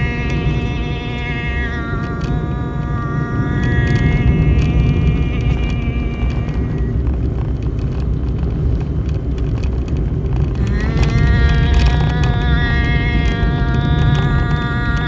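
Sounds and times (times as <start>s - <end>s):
long held tone with overtones: 0.0s - 7.3s, 10.5s - 15.0s
steady low rumble: 0.0s - 15.0s.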